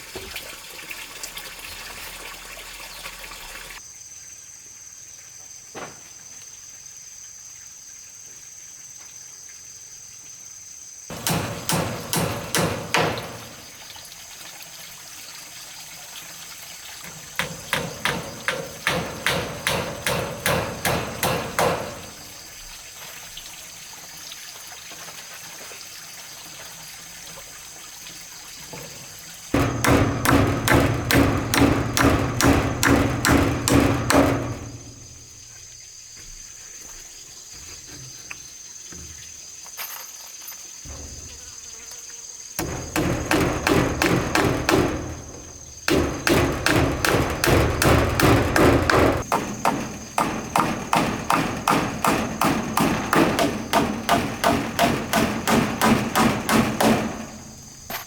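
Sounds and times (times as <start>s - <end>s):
insects droning: 1.5s - 58.0s
rapid hammering on wood: 11.1s - 13.7s, 17.1s - 22.4s, 29.6s - 35.2s, 42.6s - 57.6s.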